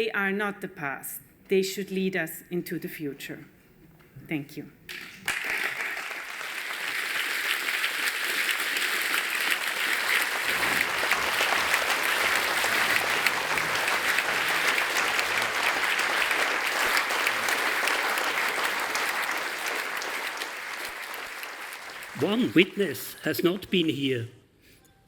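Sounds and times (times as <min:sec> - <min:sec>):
audience applauding: 0:04.9 - 0:24.1.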